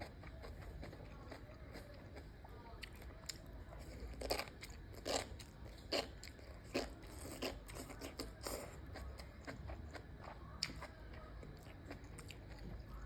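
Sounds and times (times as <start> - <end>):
chewing crisp mushrooms: 0.0 - 13.0.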